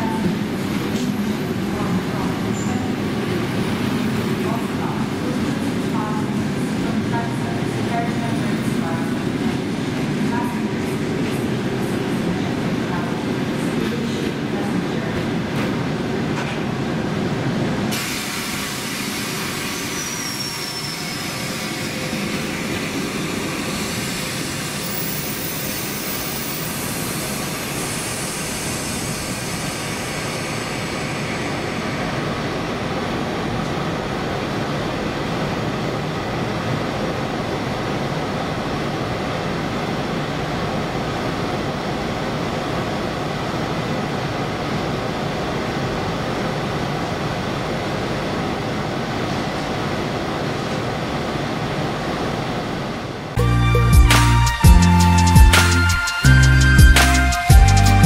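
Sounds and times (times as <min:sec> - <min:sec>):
train wheels rolling on rails: 0:00.0 - 0:53.2
wheel squeal: 0:19.7 - 0:22.0.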